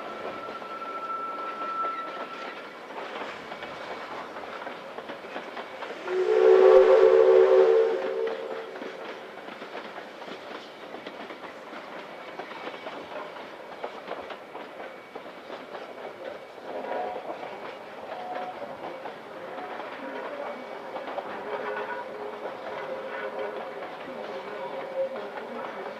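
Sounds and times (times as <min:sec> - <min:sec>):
steam locomotive whistle: 0:00.0 - 0:02.7, 0:05.9 - 0:09.2
train clickety-clack on rails: 0:00.0 - 0:25.9.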